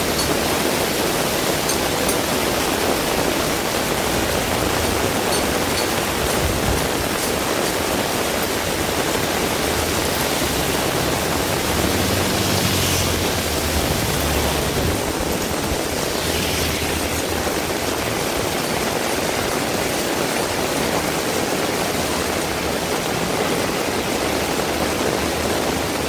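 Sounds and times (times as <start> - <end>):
heavy rain pouring: 0.0 - 26.0
vehicle passing: 8.3 - 18.6.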